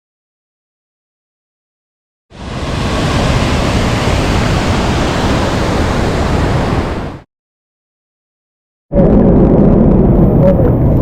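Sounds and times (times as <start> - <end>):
waterfall roaring: 2.4 - 7.2.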